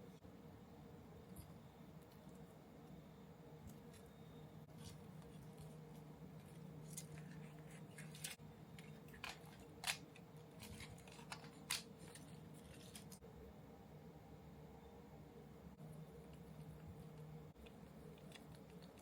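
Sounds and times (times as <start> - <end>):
steady low hum: 0.0 - 19.0
hand tools snipping plastic: 8.0 - 13.2.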